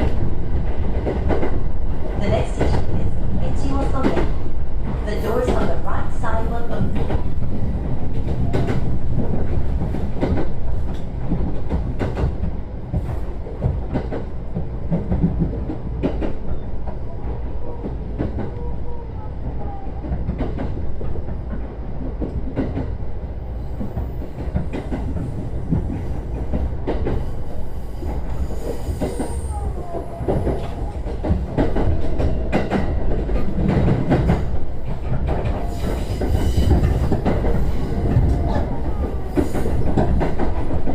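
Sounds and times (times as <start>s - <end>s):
electric train rumble: 0.0s - 40.9s
wheels clacking over rail joints: 23.8s - 40.9s.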